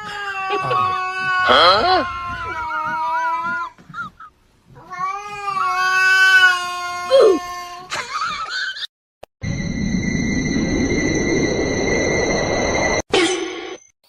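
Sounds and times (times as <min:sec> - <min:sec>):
steady electronic tones: 0:09.4 - 0:13.8.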